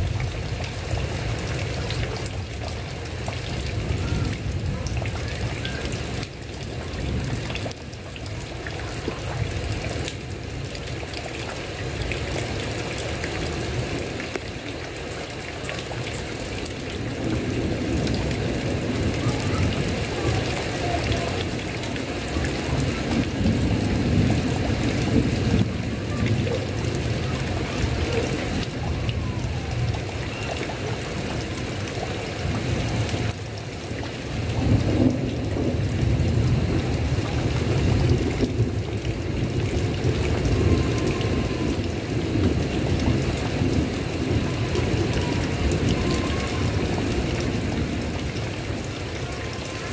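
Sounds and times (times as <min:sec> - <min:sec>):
heavy rain on a tile roof: 0:00.0 - 0:49.9.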